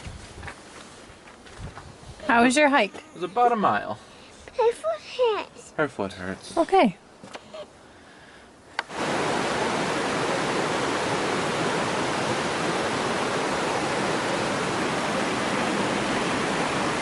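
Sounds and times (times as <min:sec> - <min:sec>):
stream water rushing: 0:08.8 - 0:17.0.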